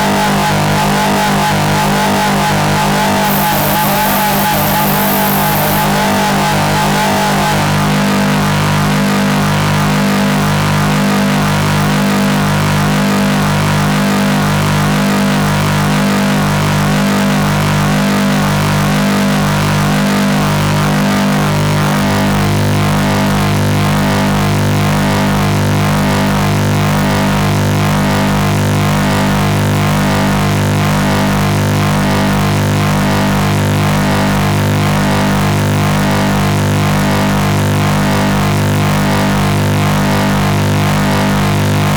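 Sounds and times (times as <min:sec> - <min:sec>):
harsh noise music drone: 0:03.3 - 0:06.0.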